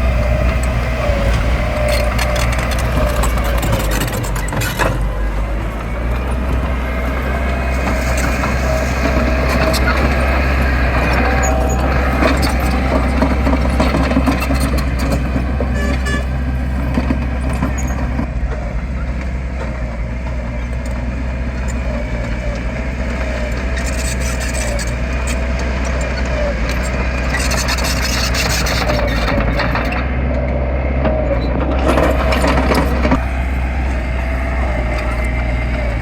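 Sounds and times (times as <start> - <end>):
diesel engine drone: 0.0 - 36.0
rattling and clanking: 0.0 - 36.0
wavering whine: 32.9 - 36.0.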